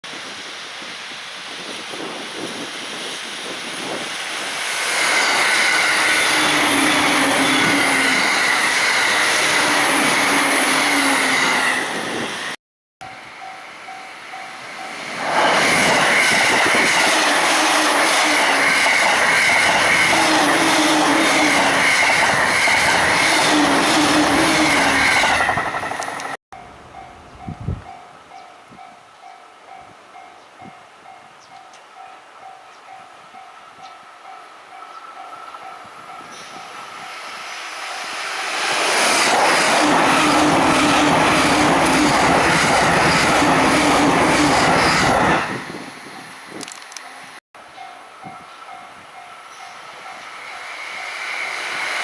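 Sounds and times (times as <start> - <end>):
train rushing past: 0.1 - 30.3, 32.4 - 52.0
level crossing warning bell: 26.6 - 36.8, 47.1 - 50.6.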